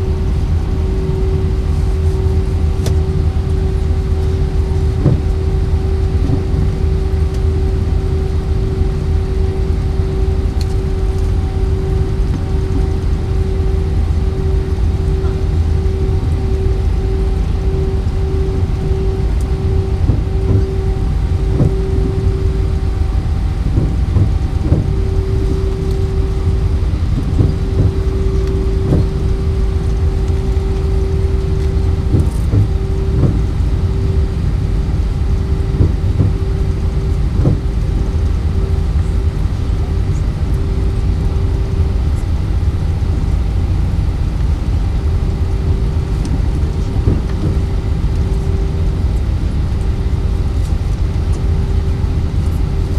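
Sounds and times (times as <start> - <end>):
jet engine rumble in cabin: 0.0 - 52.9
steady hum: 0.0 - 52.9
knocks and rattles: 23.6 - 25.6, 27.2 - 28.2.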